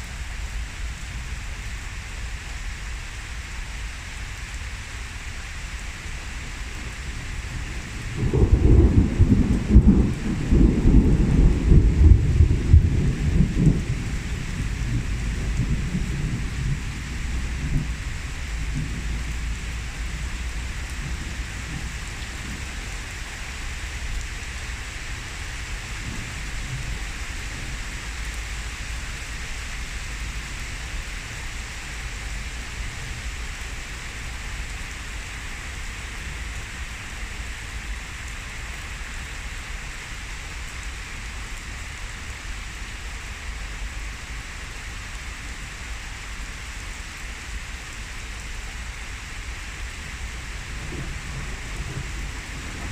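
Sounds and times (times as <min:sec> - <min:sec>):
heavy rain: 0:00.0 - 0:52.9
thunder rumble: 0:07.5 - 0:22.7, 0:50.6 - 0:52.9.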